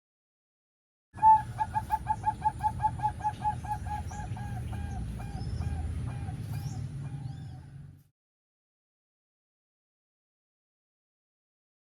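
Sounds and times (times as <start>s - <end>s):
zebra dove calling: 1.2s - 7.9s
low background rumble: 1.2s - 8.1s.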